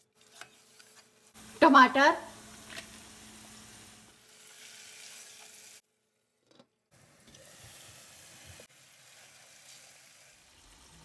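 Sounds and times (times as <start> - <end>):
tomatoes sizzling in hot oil: 1.2 - 5.8, 7.0 - 11.0.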